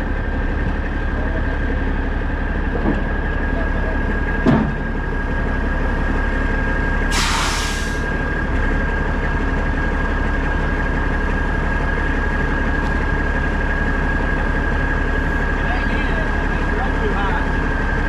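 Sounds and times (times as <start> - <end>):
diesel truck engine running: 0.0 - 18.0
air hiss: 7.1 - 8.1.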